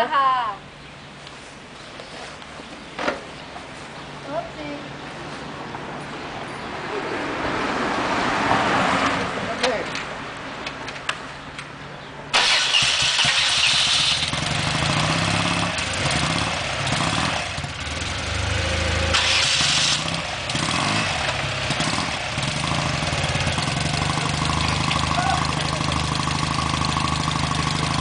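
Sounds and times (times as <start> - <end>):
motorcycle engine idling unevenly: 21.2 - 28.0.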